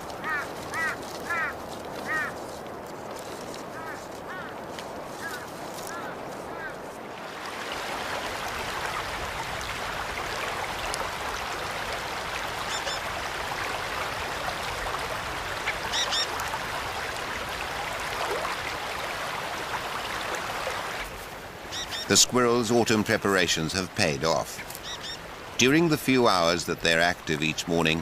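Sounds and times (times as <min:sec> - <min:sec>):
high bird calls: 0:00.0 - 0:02.5, 0:03.7 - 0:06.8, 0:12.6 - 0:13.1, 0:15.6 - 0:16.4, 0:21.7 - 0:22.2, 0:24.5 - 0:25.3.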